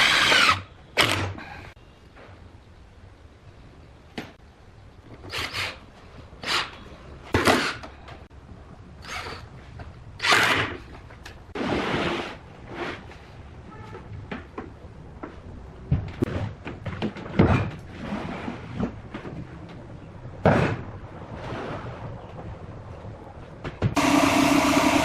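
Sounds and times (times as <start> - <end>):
wood scraping and sliding: 16.1 - 19.5.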